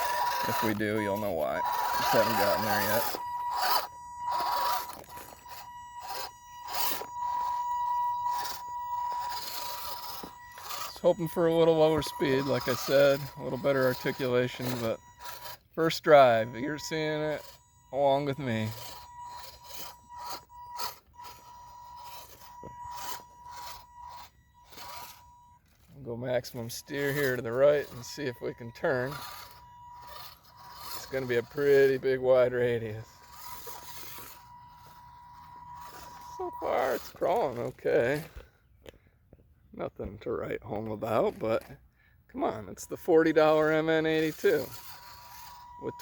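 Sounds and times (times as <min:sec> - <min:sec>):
scrapes and clicks on rock: 0:00.0 - 0:07.6, 0:32.8 - 0:39.0
tyres scraping on rock: 0:00.0 - 0:38.5, 0:42.8 - 0:46.0
electric drivetrain whine: 0:00.0 - 0:39.0, 0:43.1 - 0:46.0.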